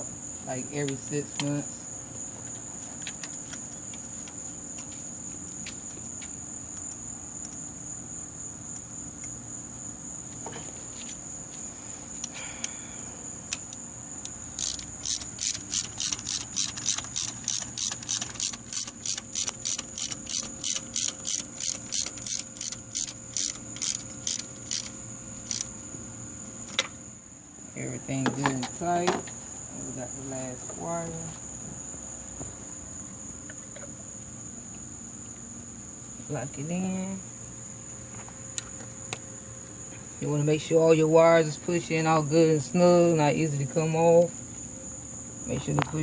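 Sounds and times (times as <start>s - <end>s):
ratchet wrench clicking: 13.5s - 25.7s.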